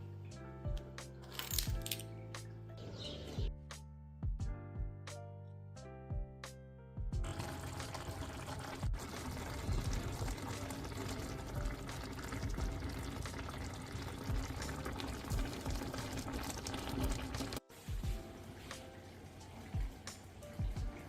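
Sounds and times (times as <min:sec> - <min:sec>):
soft background music: 0:00.0 - 0:21.0
water pouring: 0:07.2 - 0:21.0.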